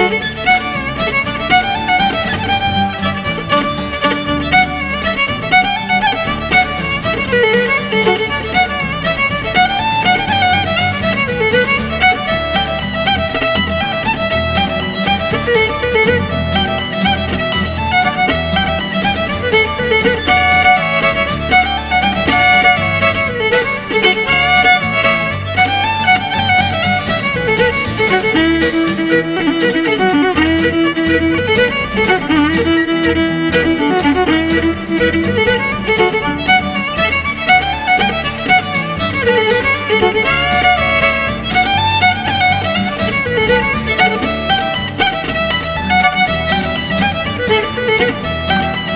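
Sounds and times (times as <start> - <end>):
fiddle playing fast dance tune: 0.0 - 48.9.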